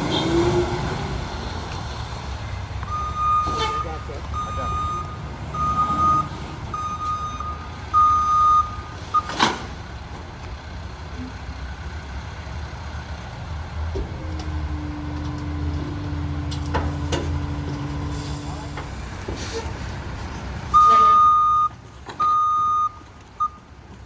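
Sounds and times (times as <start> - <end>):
diesel engine running: 0.0 - 24.0
truck reversing alarm beeping: 2.9 - 9.4, 20.7 - 23.7.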